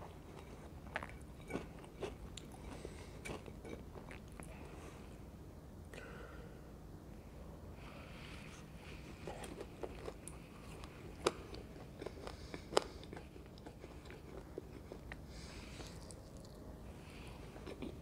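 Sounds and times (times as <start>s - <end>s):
crunchy chewing of fried snack: 0.0s - 4.6s, 9.0s - 18.0s.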